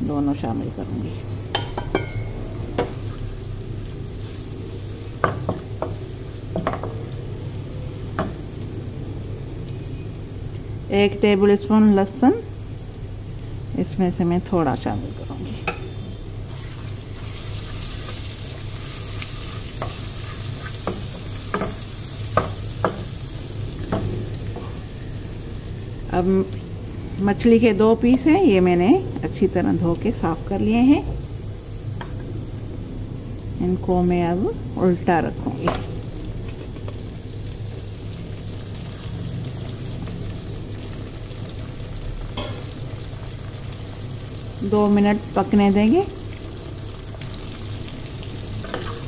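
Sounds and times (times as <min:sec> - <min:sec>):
garlic and onions sizzling in oil: 0:00.0 - 0:49.0.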